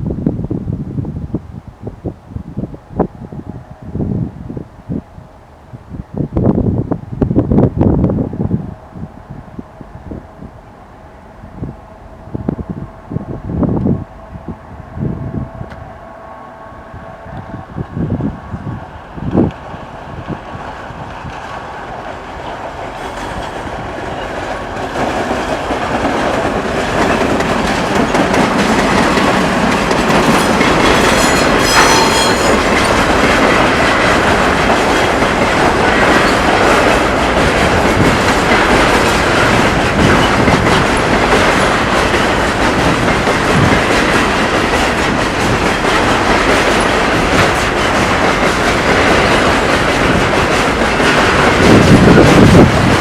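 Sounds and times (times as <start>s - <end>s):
freight train rolling past: 0.0s - 53.0s
wagon wheels clattering over rail joints: 22.5s - 53.0s
high-pitched squeal: 29.6s - 33.0s.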